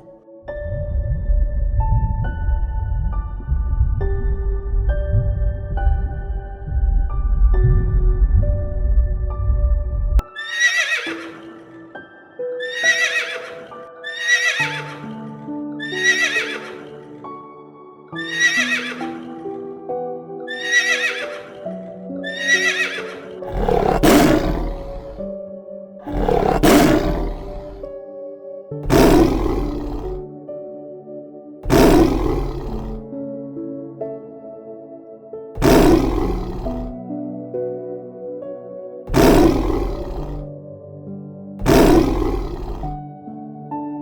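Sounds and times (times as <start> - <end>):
soft background music: 0.0 - 41.6, 43.0 - 44.0
horse whinnying: 10.2 - 11.6, 12.6 - 15.1, 15.8 - 17.0, 18.2 - 19.2, 20.5 - 21.6, 22.2 - 25.2, 26.1 - 27.9, 28.8 - 30.2, 31.6 - 33.0, 35.6 - 37.0, 39.1 - 40.5, 41.6 - 43.0.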